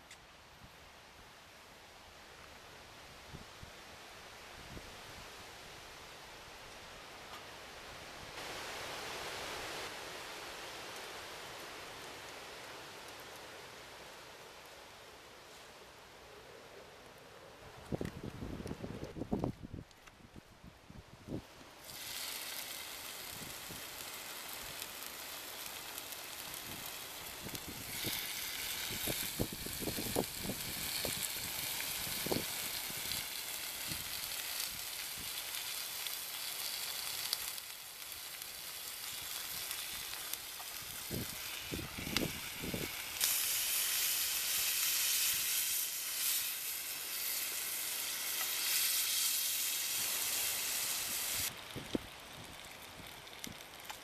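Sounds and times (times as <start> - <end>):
food sizzling in a pan: 21.8 - 53.6.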